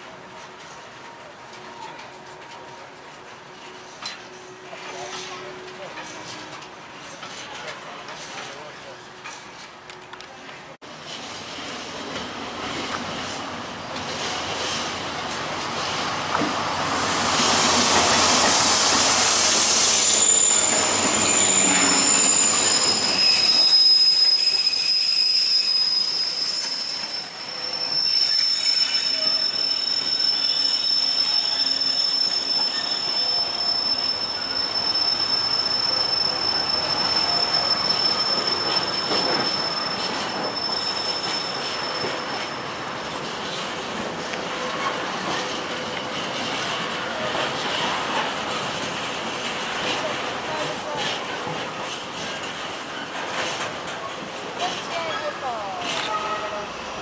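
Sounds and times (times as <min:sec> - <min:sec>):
train wheel and body noise: 0:00.0 - 0:57.0
metallic wheel squeal: 0:19.3 - 0:42.8.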